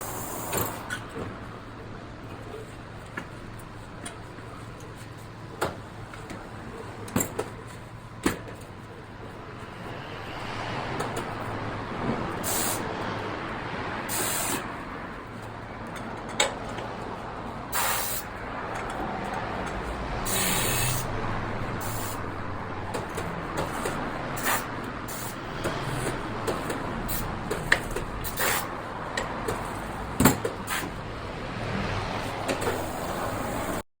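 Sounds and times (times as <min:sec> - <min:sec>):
compressed air hissing: 0:12.4 - 0:12.9, 0:14.1 - 0:14.7, 0:17.7 - 0:18.3, 0:20.2 - 0:21.1, 0:21.8 - 0:22.3, 0:23.6 - 0:26.2, 0:28.2 - 0:28.7.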